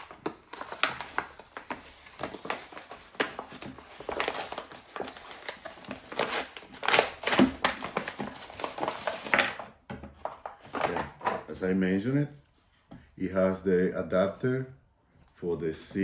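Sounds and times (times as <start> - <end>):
envelope rustling and crinkling: 0.0 - 11.3.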